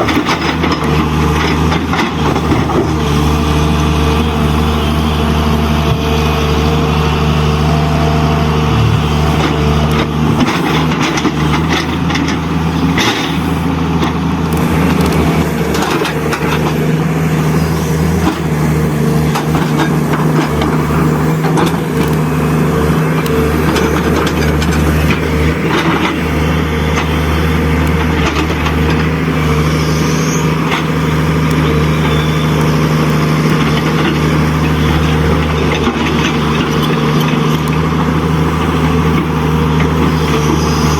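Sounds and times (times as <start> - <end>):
low engine-like drone: 0.0 - 40.9
scraping and clicking in sand: 8.8 - 40.9.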